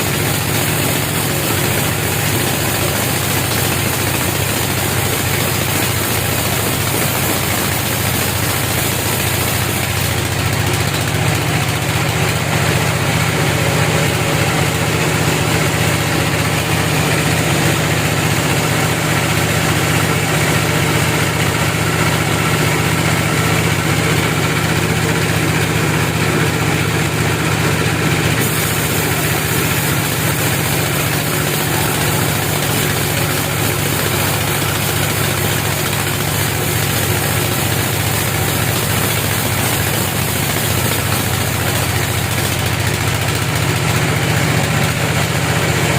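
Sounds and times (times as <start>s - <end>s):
engine idling: 0.0s - 45.9s.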